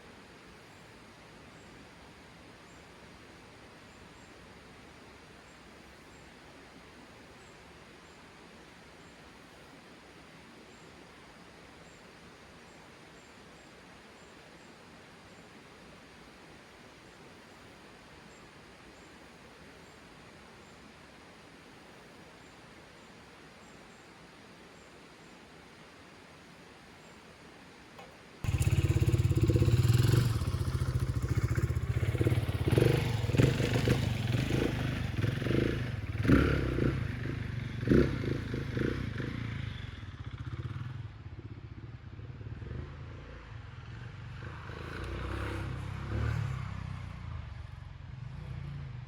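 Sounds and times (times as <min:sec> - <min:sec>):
motorcycle engine running: 0:28.0 - 0:49.0.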